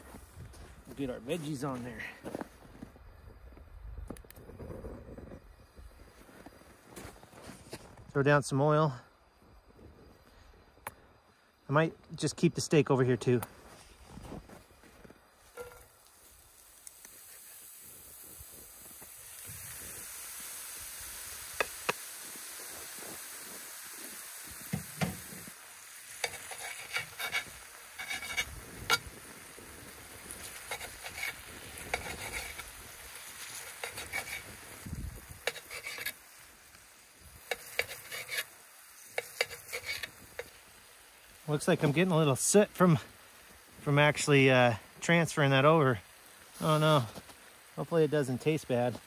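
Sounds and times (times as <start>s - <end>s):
food sizzling on griddle: 13.6s - 49.0s
metal tongs clicking and scraping: 33.7s - 34.4s, 35.4s - 36.2s, 37.5s - 38.5s, 39.2s - 40.5s.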